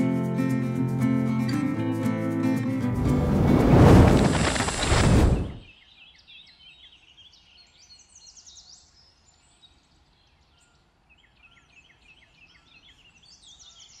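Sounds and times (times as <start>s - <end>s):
small birds chirping: 4.2s - 14.0s.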